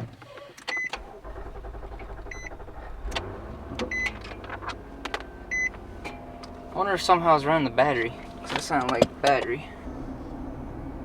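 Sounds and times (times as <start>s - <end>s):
engine starting and rumbling: 0.0s - 11.0s.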